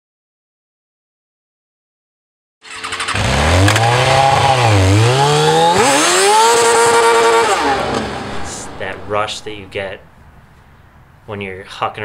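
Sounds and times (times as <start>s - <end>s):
motorcycle engine revving: 2.6s - 9.5s.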